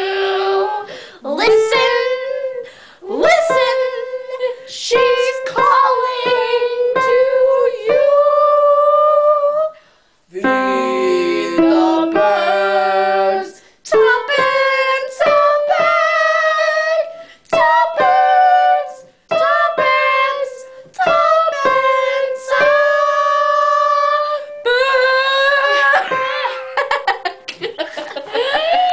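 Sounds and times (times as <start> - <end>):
woman singing high notes: 0.0 - 9.8, 13.9 - 26.2.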